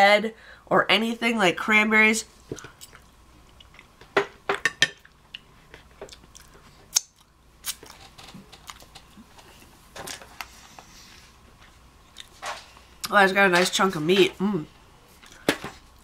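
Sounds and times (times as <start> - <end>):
person chewing with wet smacks: 2.6 - 4.0, 5.0 - 9.7, 12.1 - 12.4.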